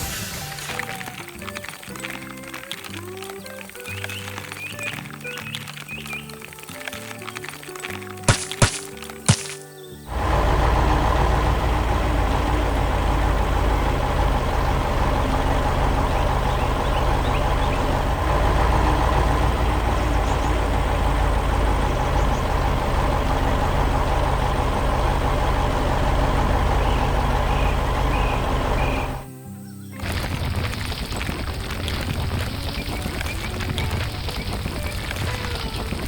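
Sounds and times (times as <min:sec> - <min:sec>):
truck diesel engine rumbling: 0:00.0 - 0:08.3, 0:10.0 - 0:29.3, 0:30.0 - 0:36.0.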